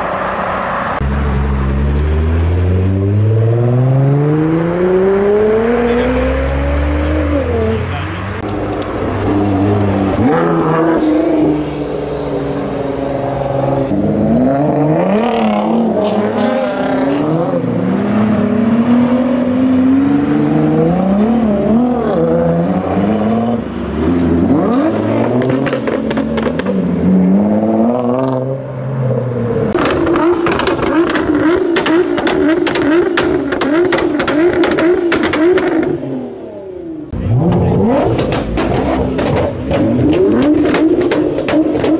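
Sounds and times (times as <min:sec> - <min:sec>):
car engine revving and accelerating: 0:00.0 - 0:41.9
exhaust pops and crackles: 0:29.8 - 0:35.9, 0:37.4 - 0:41.9.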